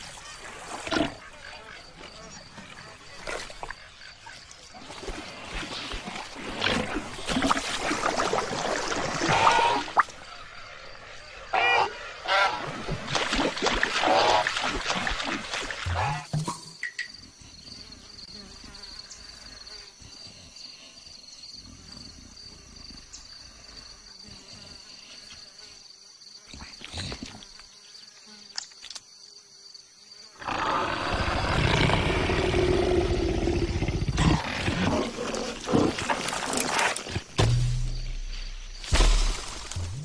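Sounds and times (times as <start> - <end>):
loud rough animal roar: 30.4 - 36.1.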